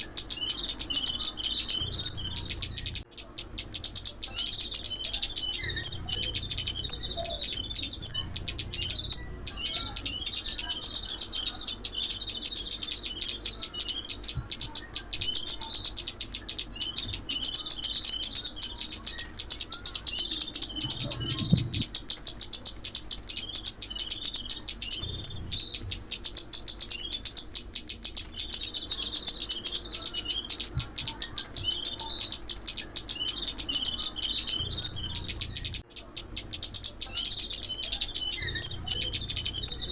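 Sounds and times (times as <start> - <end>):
songbird chirps and trills: 0.0 - 39.9.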